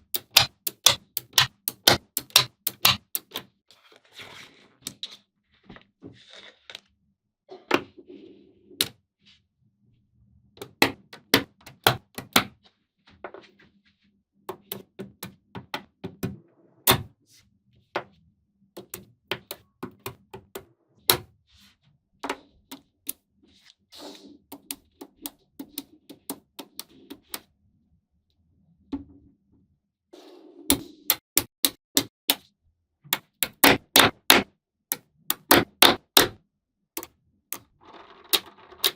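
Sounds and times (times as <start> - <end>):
magnetic balls clicking together: 0.0 - 3.5
soft handling noise: 3.7 - 7.0.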